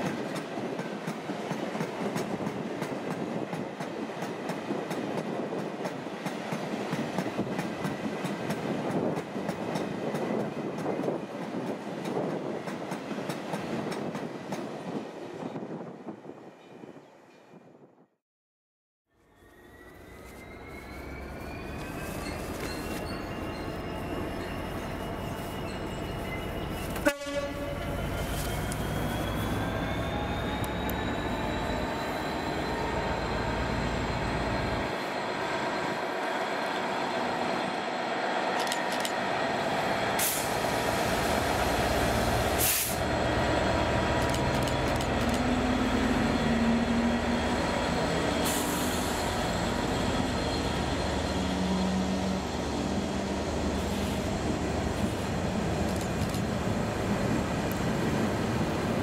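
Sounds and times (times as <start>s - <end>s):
diesel locomotive engine working: 19.1s - 59.0s
train horn blast: 27.0s - 28.4s.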